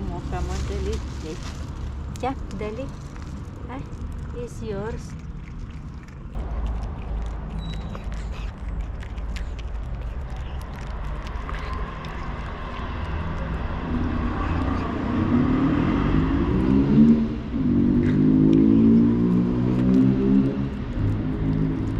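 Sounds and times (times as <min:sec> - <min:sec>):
low traffic rumble: 0:00.0 - 0:21.9.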